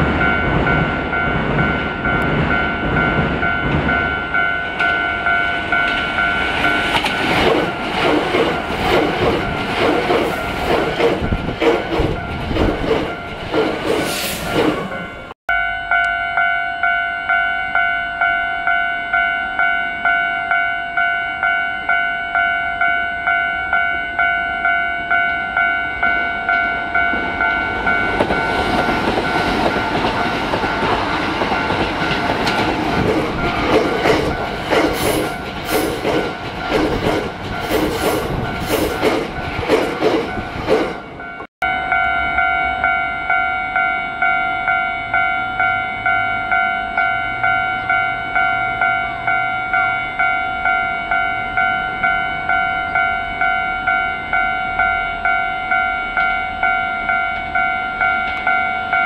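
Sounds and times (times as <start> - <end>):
level crossing warning bell: 0.0 - 13.7, 14.4 - 59.0
train wheels clattering over rail joints: 5.9 - 14.9, 28.2 - 41.1.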